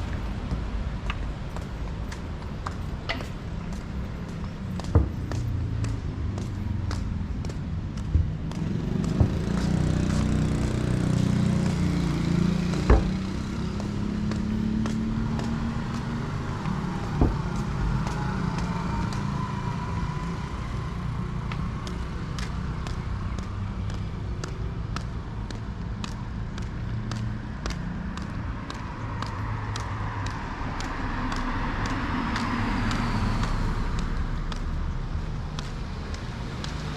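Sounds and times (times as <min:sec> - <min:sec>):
steady traffic hum: 0:00.0 - 0:36.9
vehicle engine passing: 0:02.7 - 0:23.2
sharp knocks: 0:04.8 - 0:06.0, 0:06.9 - 0:10.8, 0:12.7 - 0:13.6, 0:17.1 - 0:17.8.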